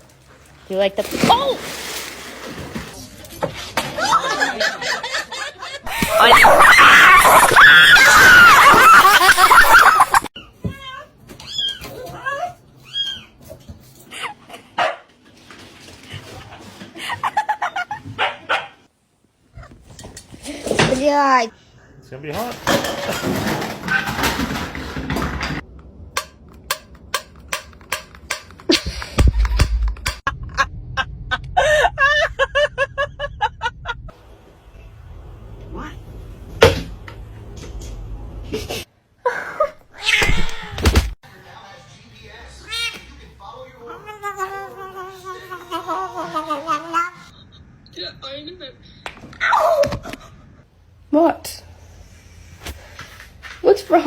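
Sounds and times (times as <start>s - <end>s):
person laughing hard: 5.9s - 10.3s, 30.3s - 34.1s.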